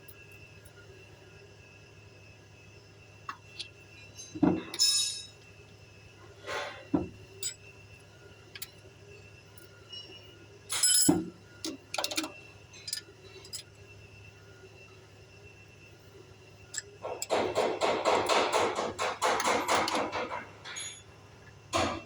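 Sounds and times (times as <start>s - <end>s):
metal tools clinking: 4.1s - 5.3s, 10.7s - 13.7s, 19.4s - 21.1s.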